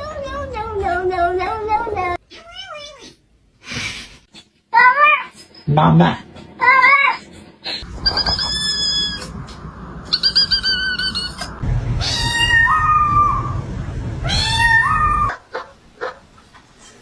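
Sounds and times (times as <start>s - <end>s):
steady low rumble: 7.8s - 16.0s
cat meowing: 10.1s - 13.6s, 14.2s - 15.3s.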